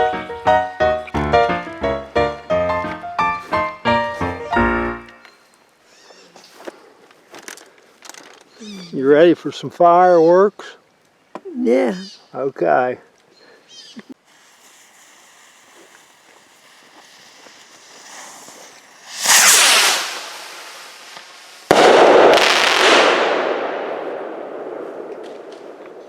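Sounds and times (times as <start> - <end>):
firework hiss and burst: 14.1 - 23.6
sharp firework bang: 14.7 - 26.0.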